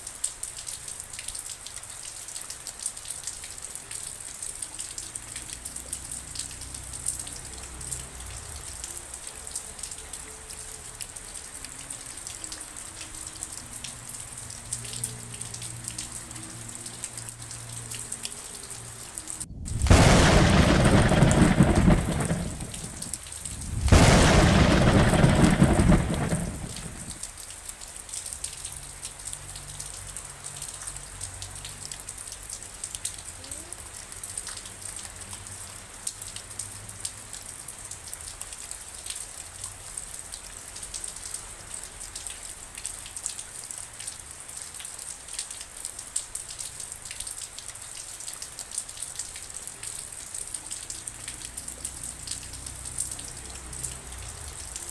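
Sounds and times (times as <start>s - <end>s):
steady rain: 0.0s - 54.9s
thunder claps: 19.5s - 27.2s.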